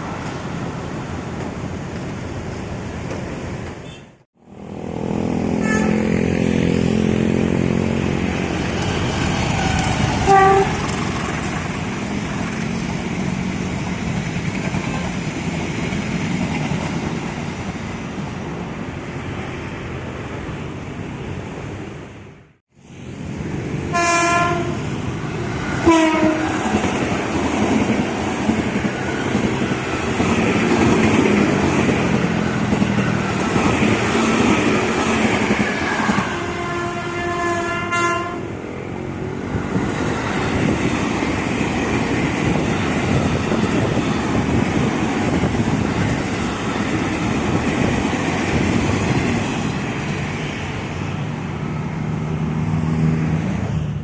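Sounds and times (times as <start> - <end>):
train rumbling and rattling: 0.0 - 3.9, 4.5 - 22.3, 22.9 - 54.0
train horn blast: 5.3 - 6.6, 10.2 - 10.8, 23.9 - 24.9, 25.8 - 26.6, 36.1 - 38.5.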